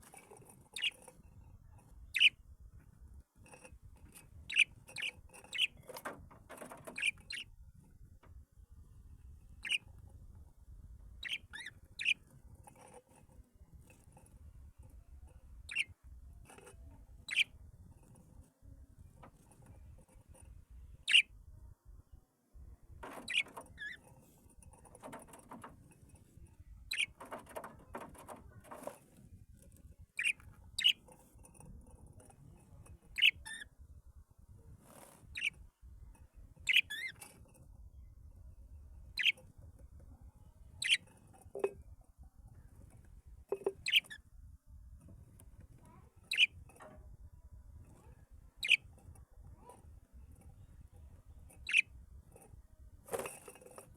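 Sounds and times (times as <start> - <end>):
bird chirping: 0.2 - 1.1, 2.1 - 2.4, 4.4 - 7.5, 9.6 - 9.9, 11.2 - 12.3, 15.6 - 16.0, 17.2 - 17.5, 21.0 - 21.3, 23.0 - 24.1, 26.7 - 28.8, 30.2 - 31.1, 33.1 - 33.7, 35.3 - 35.6, 36.6 - 37.3, 39.1 - 39.4, 40.8 - 41.8, 43.5 - 44.2, 46.2 - 46.6, 48.1 - 48.9, 51.6 - 51.9.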